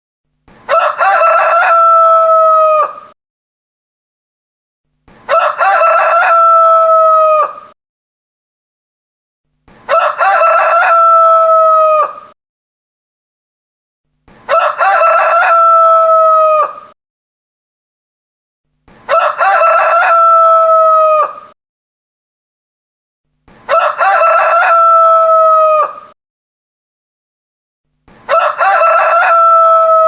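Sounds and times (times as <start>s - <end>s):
rooster crowing: 0.7s - 3.1s, 5.3s - 7.8s, 9.9s - 12.4s, 14.5s - 17.0s, 19.1s - 21.6s, 23.7s - 26.2s, 28.3s - 30.0s.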